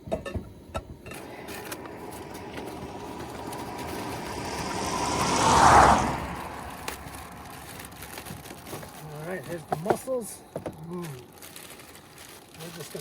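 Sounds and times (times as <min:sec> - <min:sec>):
vehicle driving past: 0:01.1 - 0:09.2.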